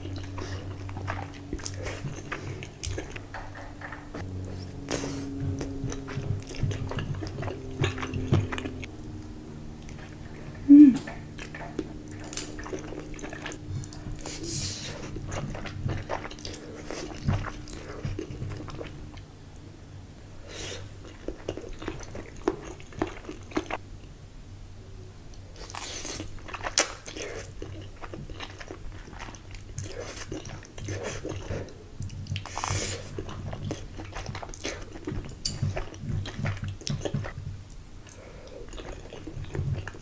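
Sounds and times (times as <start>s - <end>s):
chewing and crunching: 0.0s - 19.3s, 20.4s - 23.8s, 25.3s - 40.0s.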